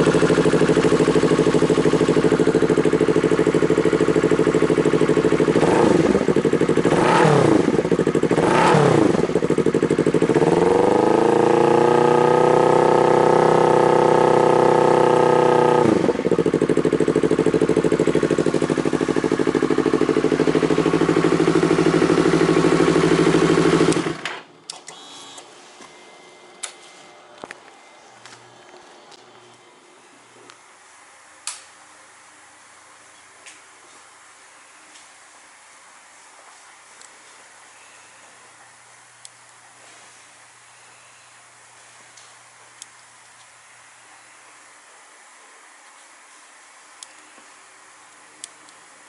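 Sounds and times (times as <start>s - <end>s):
motorcycle engine revving and idling: 0.0s - 24.4s.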